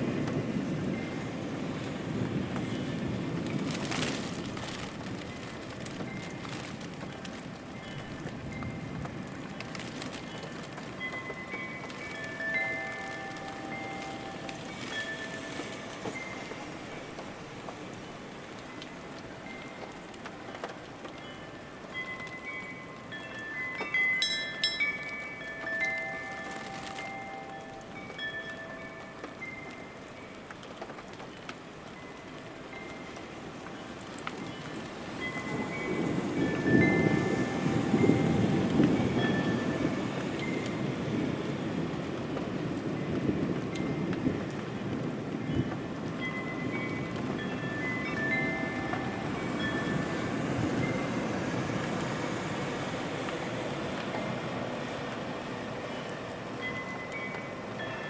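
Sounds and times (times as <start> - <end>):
rain falling: 0.0 - 58.0
wind chimes ringing: 7.6 - 30.5, 31.9 - 41.2, 45.5 - 51.3, 55.9 - 58.0.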